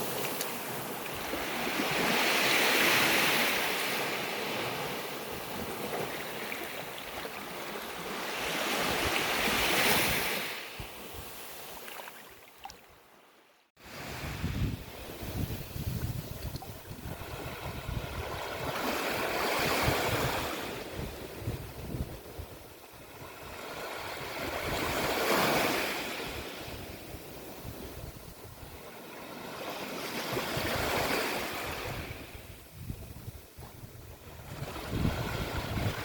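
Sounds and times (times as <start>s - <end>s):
sea waves breaking on beach: 0.0s - 12.6s, 13.8s - 36.0s
wind rumble on microphone: 13.8s - 36.0s.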